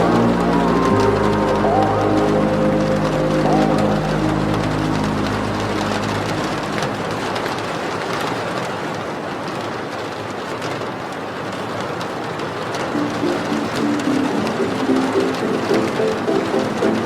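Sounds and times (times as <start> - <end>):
song: 0.0 - 7.8, 13.0 - 17.0
steady rain hiss: 0.0 - 9.2, 12.8 - 17.0.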